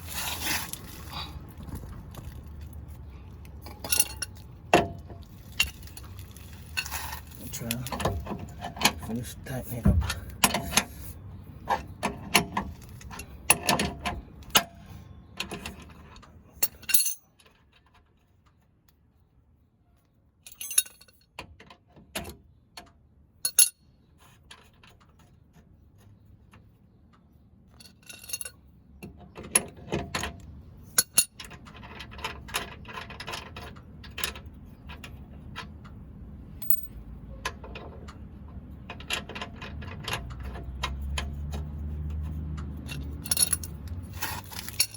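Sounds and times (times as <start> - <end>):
hand tools clinking on metal: 16.6 - 17.3, 42.8 - 44.9.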